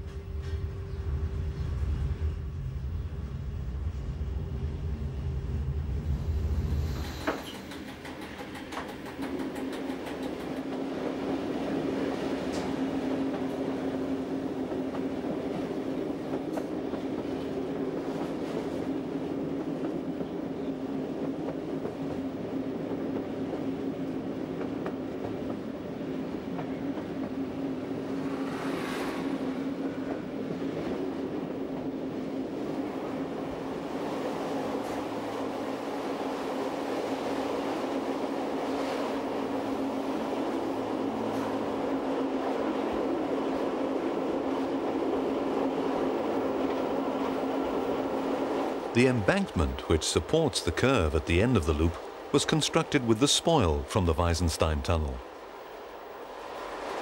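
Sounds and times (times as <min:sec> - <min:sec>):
wheels clicking over rails: 0:07.0 - 0:11.2.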